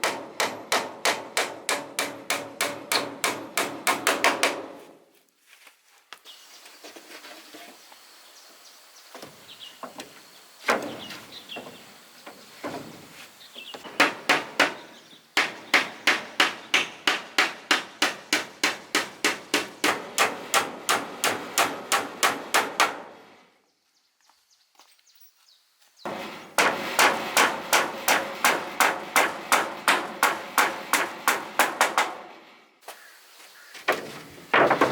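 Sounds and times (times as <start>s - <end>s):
hammering on wood: 0.0s - 4.8s, 13.8s - 23.2s, 26.1s - 32.4s.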